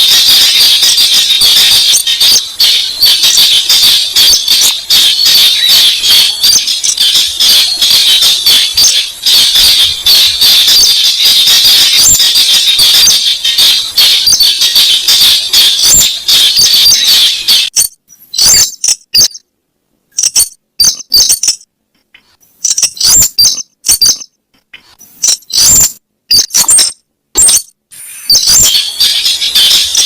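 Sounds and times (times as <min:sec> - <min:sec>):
bird chattering calls: 0:25.4 - 0:30.0.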